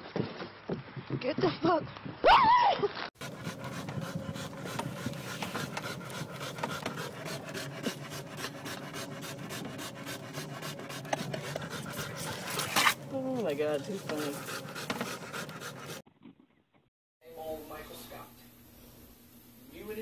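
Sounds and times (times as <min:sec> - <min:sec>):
dog panting: 0:03.2 - 0:16.0.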